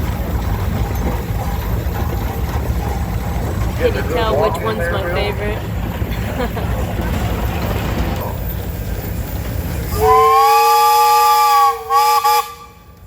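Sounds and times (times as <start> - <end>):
low steady rumble: 0.0 - 13.0
steam engine whistle: 9.9 - 13.0.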